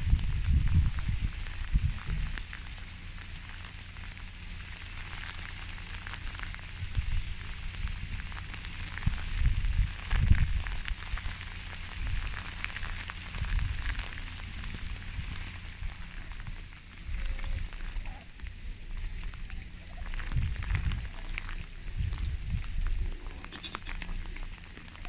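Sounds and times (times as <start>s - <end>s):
light rain pattering: 0.0s - 25.0s
low rumbling: 0.0s - 25.0s.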